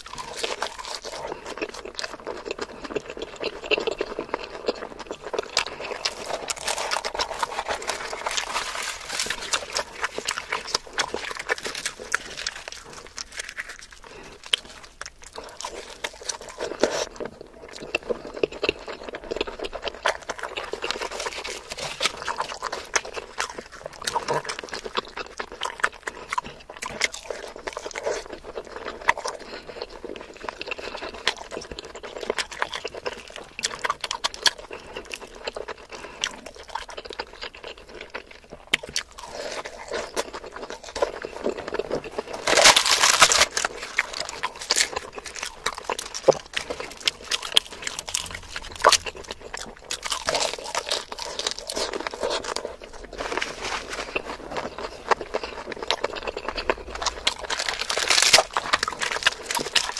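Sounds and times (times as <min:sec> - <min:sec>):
chewing and mouth clicks: 0:00.0 - 0:59.9
bread tearing by hand: 0:06.1 - 0:14.8, 0:42.2 - 0:49.1.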